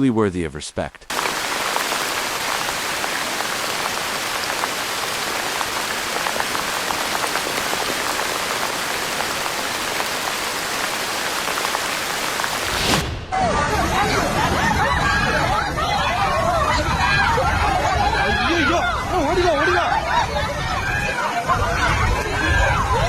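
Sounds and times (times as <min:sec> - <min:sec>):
heavy rain falling: 0:01.1 - 0:13.2.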